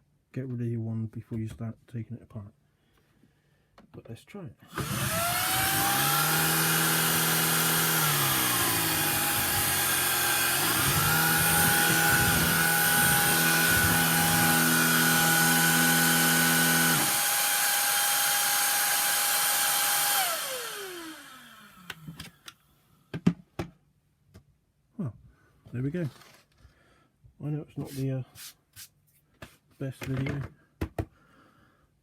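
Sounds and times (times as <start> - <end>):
vacuum cleaner high whine: 4.7 - 22.2
vacuum cleaner winding down: 4.7 - 22.2
vacuum cleaner low hum: 4.7 - 22.3.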